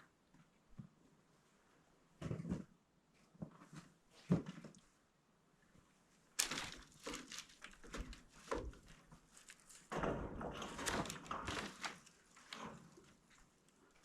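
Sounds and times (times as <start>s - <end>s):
panel scraping and crinkling: 6.4s - 14.0s.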